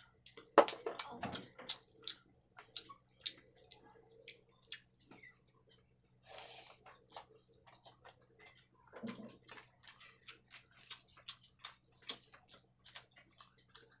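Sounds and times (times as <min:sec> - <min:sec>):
wet chewing and lip-smacking: 0:00.0 - 0:06.0, 0:06.6 - 0:14.0.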